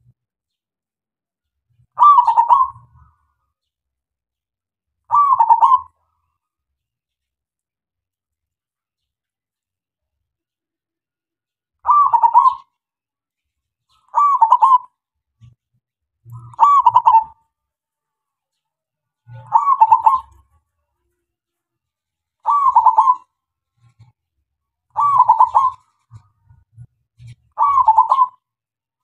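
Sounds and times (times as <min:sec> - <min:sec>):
dove cooing: 0:02.0 - 0:03.1, 0:05.1 - 0:06.0, 0:11.8 - 0:12.7, 0:14.1 - 0:15.0, 0:16.4 - 0:17.4, 0:19.3 - 0:20.4, 0:22.4 - 0:24.0, 0:24.9 - 0:26.6, 0:27.3 - 0:28.4.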